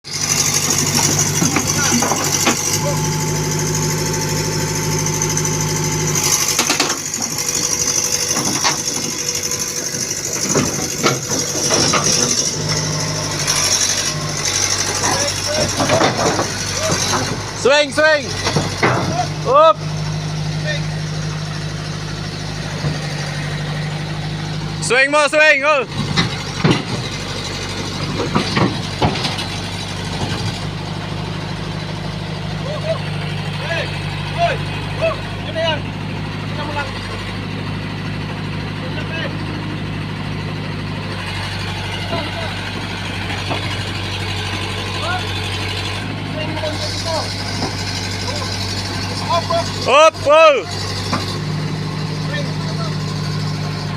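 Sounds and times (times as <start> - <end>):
excavator engine running: 0.0 - 53.9
metal knocks and clanks: 0.6 - 2.8, 6.4 - 17.7, 18.3 - 19.4, 25.9 - 30.8, 41.2 - 45.0, 45.9 - 49.8.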